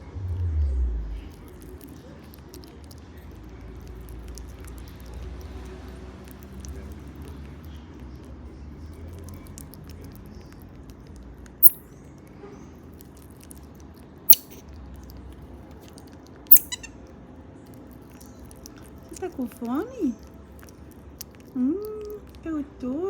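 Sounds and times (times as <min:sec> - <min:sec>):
marmosets high-pitched calls: 0:14.3 - 0:14.6, 0:16.5 - 0:16.9.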